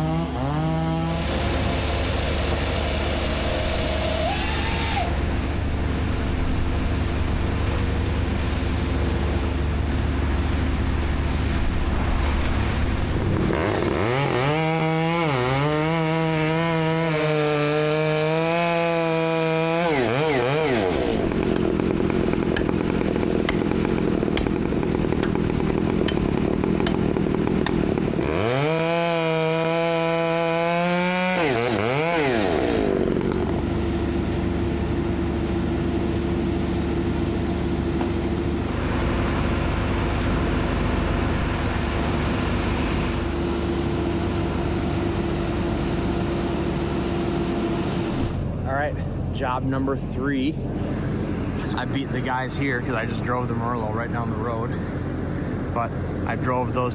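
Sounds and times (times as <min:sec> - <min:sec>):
chainsaw revving: 0:00.0 - 0:05.5, 0:13.2 - 0:34.6
low engine hum: 0:00.0 - 0:17.1, 0:18.8 - 0:31.3, 0:32.6 - 0:56.9.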